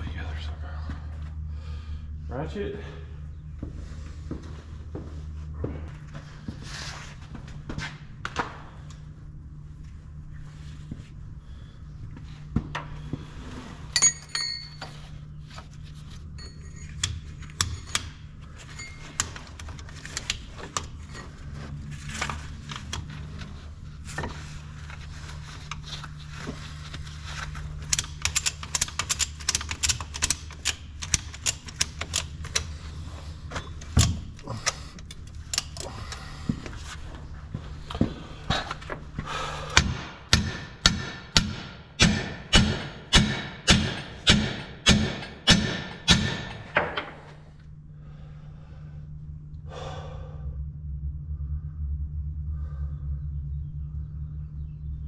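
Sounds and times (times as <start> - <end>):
low hum: 0.0 - 55.0
ringing metal strike: 14.0 - 14.9
metal clanks: 14.0 - 15.0.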